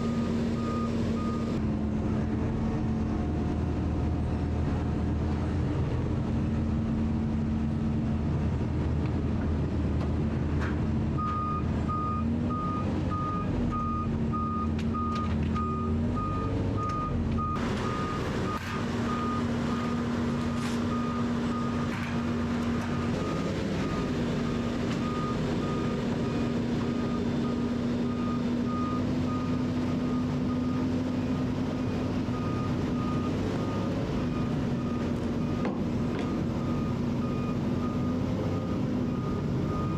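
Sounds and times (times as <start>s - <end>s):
reversing alarm beeping: 0.0s - 1.6s, 11.2s - 21.9s, 23.1s - 31.0s, 31.8s - 39.9s
heavy vehicle engine running: 0.0s - 39.9s.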